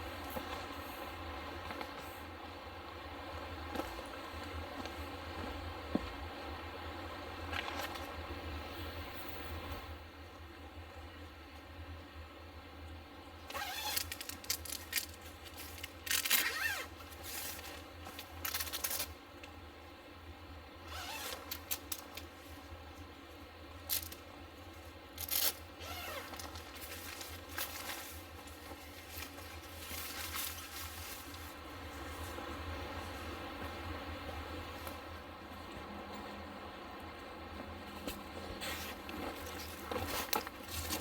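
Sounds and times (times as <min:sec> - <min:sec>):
steady low hum: 0:16.9 - 0:41.0
objects scraping and rustling: 0:25.2 - 0:32.5, 0:38.0 - 0:41.0.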